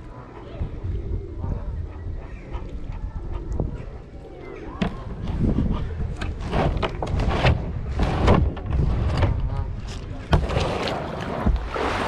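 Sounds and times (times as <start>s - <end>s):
wind buffeting microphone: 0.0s - 12.0s
paddle strokes splashing water: 10.4s - 12.0s.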